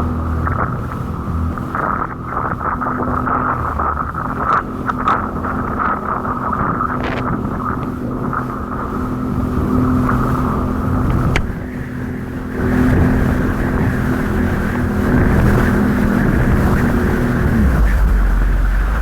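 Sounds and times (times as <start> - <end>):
jet ski engine drone: 0.0 - 19.0
water wash: 0.0 - 19.0.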